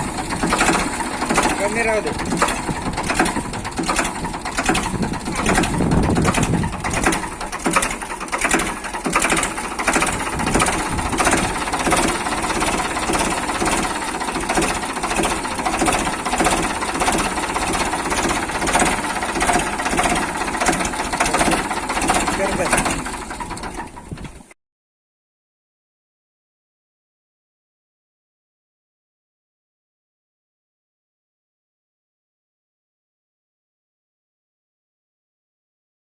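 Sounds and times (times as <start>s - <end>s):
tractor engine clattering: 0.0s - 24.6s.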